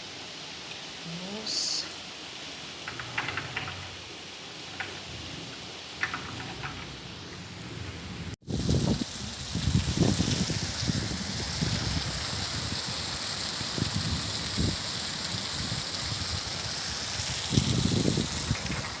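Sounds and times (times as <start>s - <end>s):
heavy rain falling: 0.0s - 19.0s
low rumbles: 2.7s - 10.4s.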